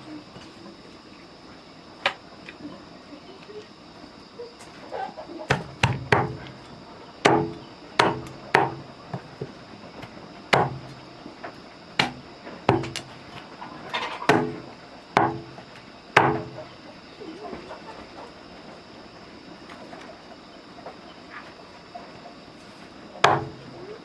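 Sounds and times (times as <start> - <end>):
tool striking wood: 5.5 - 11.0, 12.0 - 13.2, 14.3 - 15.6, 16.2 - 16.6, 23.2 - 23.7.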